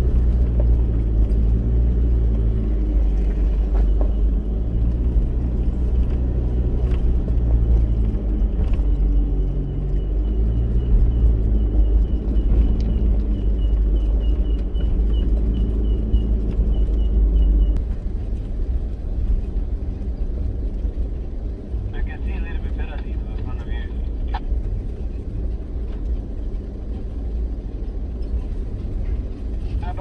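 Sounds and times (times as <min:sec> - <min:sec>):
vehicle engine rumbling: 0:00.0 - 0:30.0.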